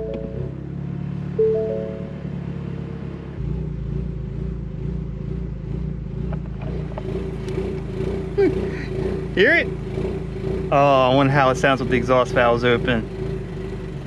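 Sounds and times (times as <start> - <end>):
electronic chime: 0.0 - 0.5, 1.4 - 2.4
choppy car engine idle: 4.0 - 14.0.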